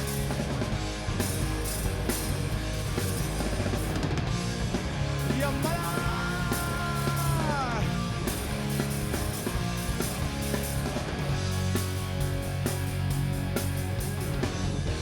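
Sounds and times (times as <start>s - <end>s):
hard rock band playing: 0.0s - 15.0s.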